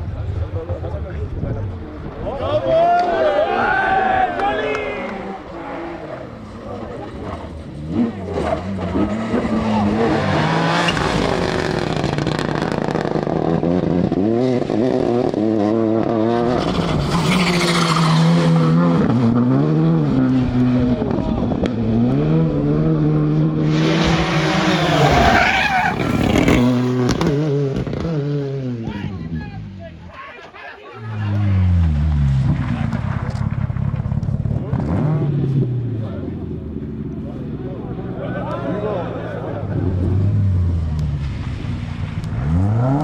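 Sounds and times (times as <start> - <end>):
tyres skidding: 2.8 - 13.3, 16.4 - 19.3, 23.2 - 28.3
rally car engine revving: 3.3 - 29.8, 31.2 - 43.0.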